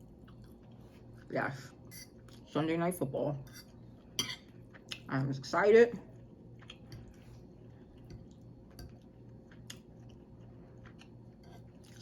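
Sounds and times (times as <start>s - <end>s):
low steady hum: 0.0s - 12.0s
chewing food: 6.1s - 12.0s.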